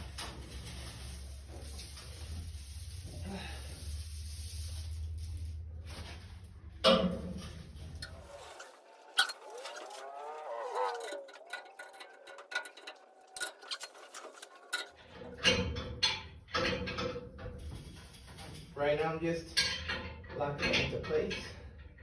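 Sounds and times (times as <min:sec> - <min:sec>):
metal knocks and clanks: 0:06.8 - 0:10.2, 0:10.9 - 0:22.0
creaking groan: 0:07.1 - 0:16.0.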